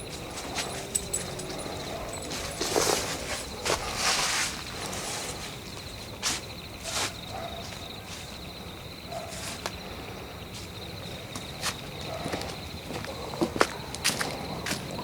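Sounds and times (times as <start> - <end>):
footsteps crunching on forest floor: 0.0 - 8.2, 11.3 - 15.0
crickets chirping: 0.0 - 15.0.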